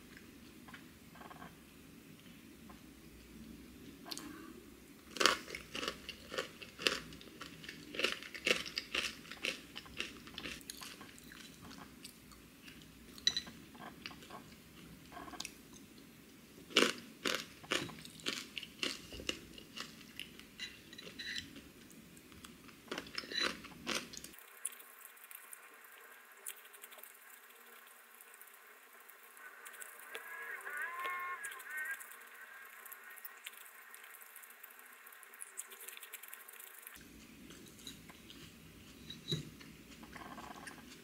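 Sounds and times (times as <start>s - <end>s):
crunchy granola chewing: 5.1s - 11.6s, 16.7s - 20.3s, 22.9s - 28.5s.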